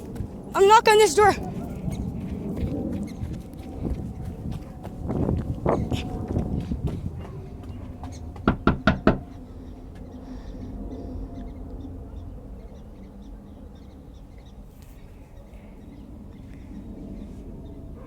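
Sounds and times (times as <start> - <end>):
knocks on a door: 8.0 - 9.3.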